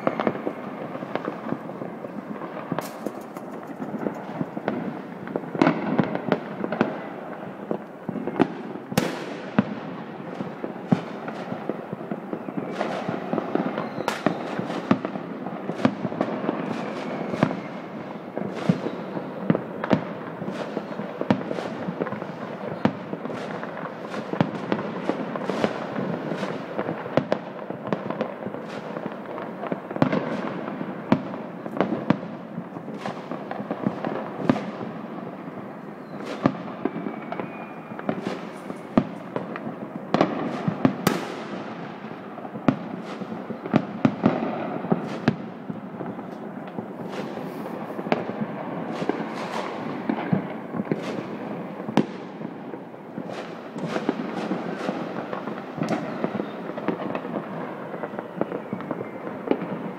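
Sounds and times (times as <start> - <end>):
fireworks crackling: 0.0 - 59.9
loud firework reports: 32.5 - 59.9.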